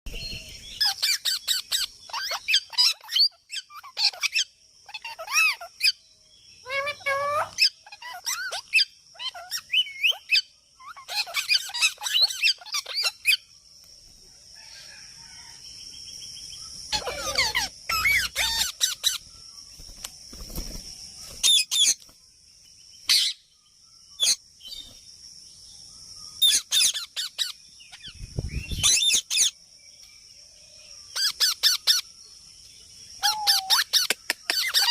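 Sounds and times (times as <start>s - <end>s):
parakeets squawking and chirping: 0.1s - 6.0s, 6.6s - 13.5s, 16.8s - 19.3s, 21.3s - 22.0s, 23.1s - 23.5s, 24.2s - 24.4s, 26.4s - 29.6s, 31.1s - 32.1s, 33.2s - 34.9s.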